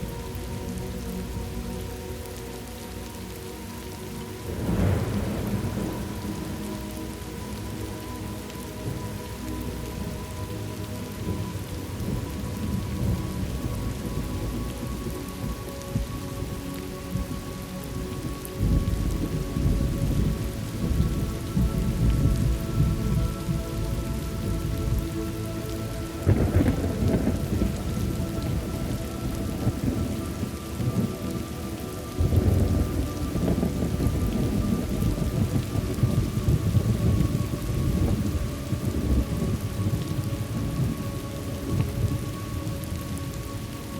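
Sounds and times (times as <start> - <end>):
heavy rain: 0.0 - 43.9
rolling thunder: 4.4 - 7.2, 18.1 - 25.1, 26.2 - 43.4
thunder crash: 26.3 - 28.7.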